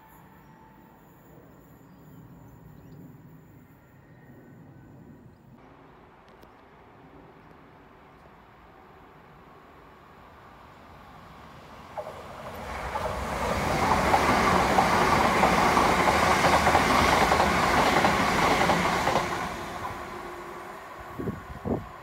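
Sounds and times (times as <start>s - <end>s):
train wheels rushing on rails: 11.2s - 22.0s.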